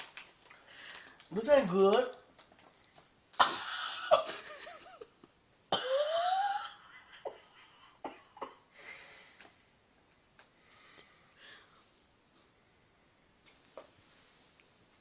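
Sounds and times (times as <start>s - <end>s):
person laughing breathily: 3.8s - 5.1s, 6.7s - 8.0s.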